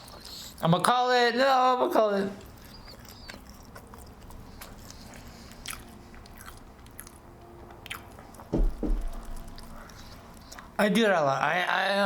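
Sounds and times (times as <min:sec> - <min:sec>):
chewing and biting: 0:02.4 - 0:10.8
wet mouth clicks: 0:07.8 - 0:10.7
low thumps: 0:08.5 - 0:09.8.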